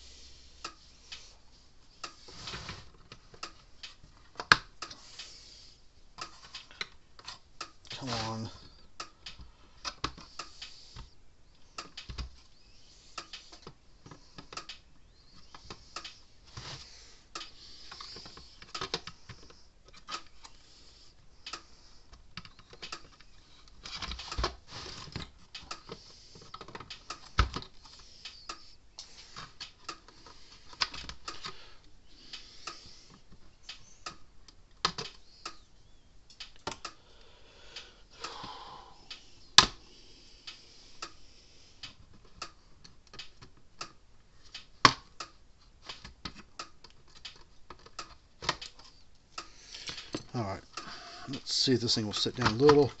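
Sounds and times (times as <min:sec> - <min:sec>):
hand tools clicking and tapping: 0:17.3 - 0:20.6.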